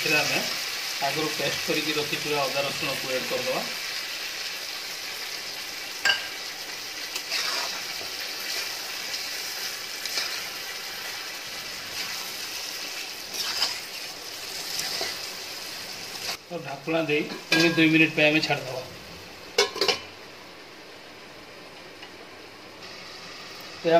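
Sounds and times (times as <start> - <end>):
chicken sizzling in hot oil: 0.0 - 20.2, 22.8 - 23.9
metal spatula scraping a pan: 7.1 - 8.7, 10.0 - 10.6, 13.3 - 15.3.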